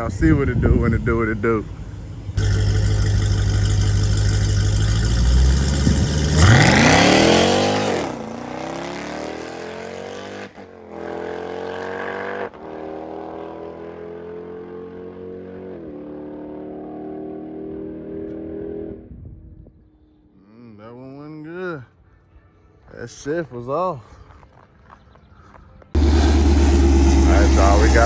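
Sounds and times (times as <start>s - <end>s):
car engine passing and accelerating: 2.1s - 19.0s, 26.0s - 28.0s.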